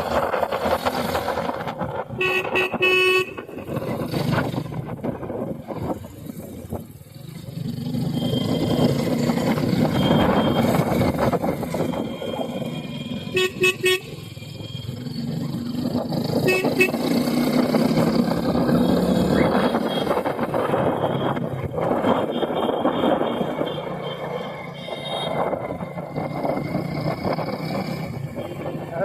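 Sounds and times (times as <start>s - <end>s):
road noise: 0.0s - 29.0s
vehicle horn short toots: 2.2s - 3.6s, 13.4s - 14.1s, 16.5s - 17.0s.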